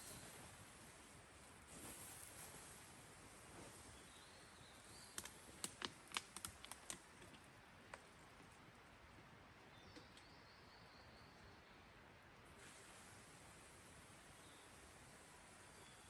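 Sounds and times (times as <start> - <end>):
campfire wood crackling: 0.0 - 4.2, 4.8 - 9.2
faint steady hiss: 0.0 - 16.0.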